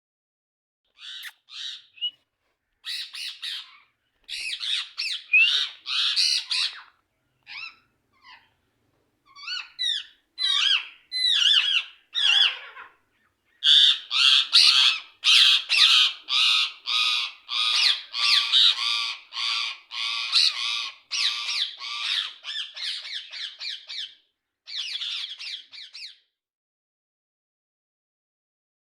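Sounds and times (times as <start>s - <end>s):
parrots squawking: 1.0s - 2.1s, 2.8s - 6.9s, 7.5s - 8.5s, 9.3s - 13.0s, 13.6s - 26.1s.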